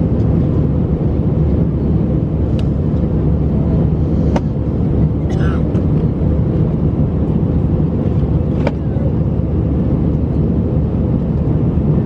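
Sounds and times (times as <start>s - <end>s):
airplane cabin roar: 0.0s - 12.0s.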